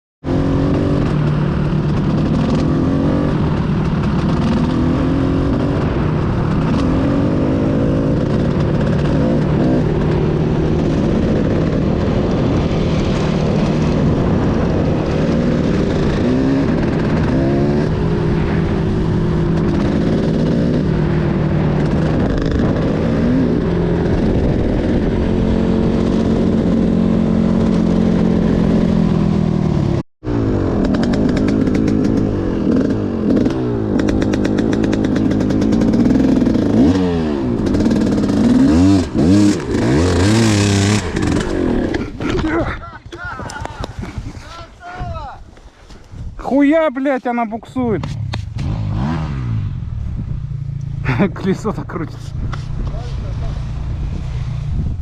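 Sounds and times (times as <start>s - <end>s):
motorcycle engine revving: 0.2s - 44.7s, 46.0s - 55.0s.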